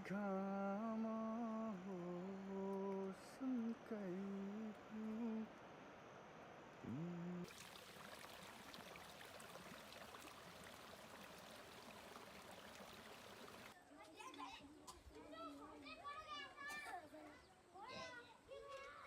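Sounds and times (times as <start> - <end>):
running water rushing: 7.4 - 13.8.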